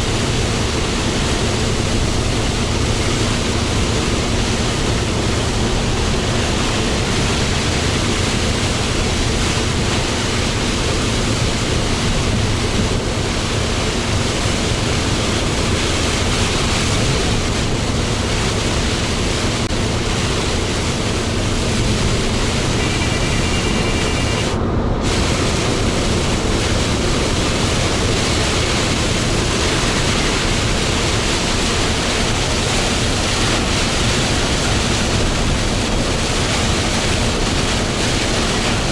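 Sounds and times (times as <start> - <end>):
truck engine drone: 0.0 - 38.9
tyres hissing on wet road: 0.0 - 38.9.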